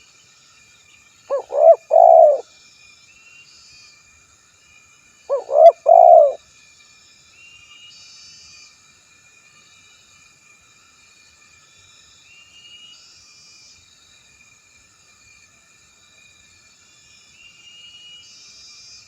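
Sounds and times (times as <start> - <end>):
dove cooing: 1.3 - 2.4, 5.3 - 6.4
faint insect buzzing: 1.3 - 2.4.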